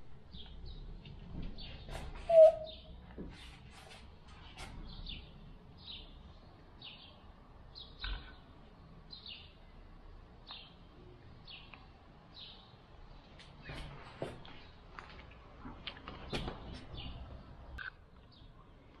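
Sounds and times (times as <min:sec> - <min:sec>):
faint bird chirps: 0:01.6 - 0:03.0, 0:07.8 - 0:08.5.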